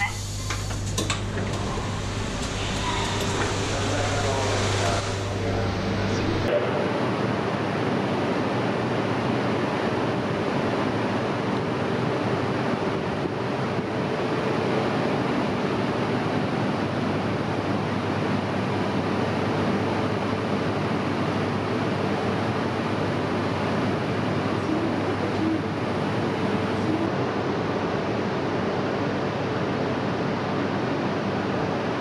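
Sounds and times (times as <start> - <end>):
faint hum: 0.0 - 7.6
steady rushing noise: 2.0 - 6.6.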